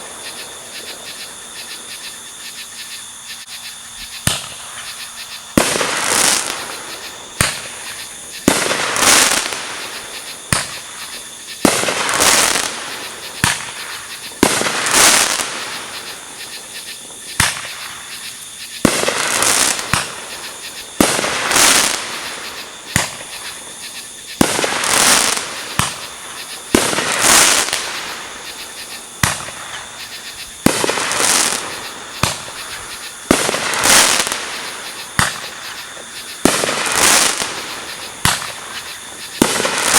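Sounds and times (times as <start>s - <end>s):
fireworks exploding: 5.6s - 16.0s, 17.4s - 18.0s, 18.8s - 23.8s, 24.4s - 29.9s, 30.6s - 39.9s.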